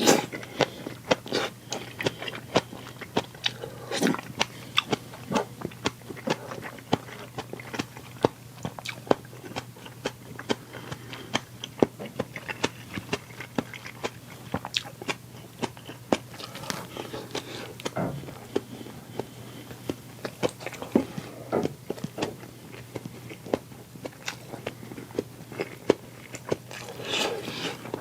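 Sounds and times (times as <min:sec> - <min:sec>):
chewing and biting food: 0:00.1 - 0:28.0.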